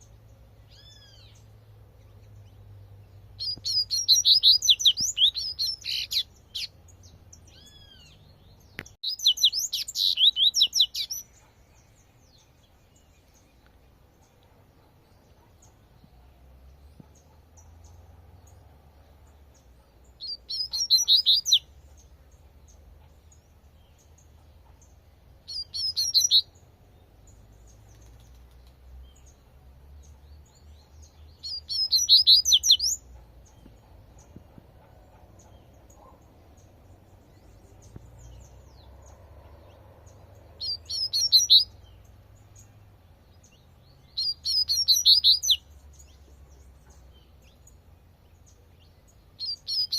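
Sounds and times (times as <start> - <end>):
bird singing rapid high notes: 3.4 - 6.8, 9.0 - 11.4, 20.2 - 21.7, 25.5 - 26.5, 31.4 - 33.0, 40.6 - 42.0, 44.1 - 45.6, 49.4 - 49.9.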